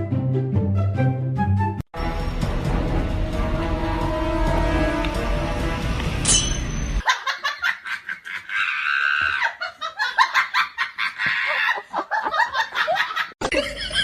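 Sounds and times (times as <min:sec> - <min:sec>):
music: 0:00.0 - 0:07.0
person laughing in choppy bursts: 0:07.0 - 0:14.0.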